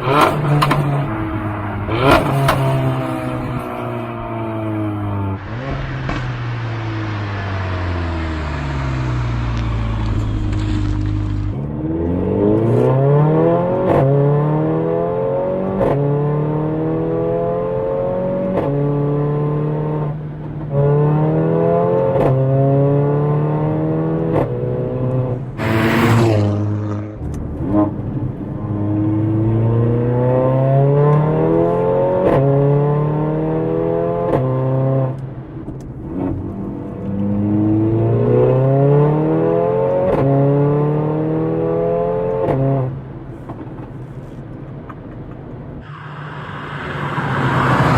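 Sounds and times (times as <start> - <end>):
car engine accelerating through gears: 0.0 - 43.8, 45.6 - 47.9
loud rush of noise: 1.1 - 10.6, 45.8 - 47.9.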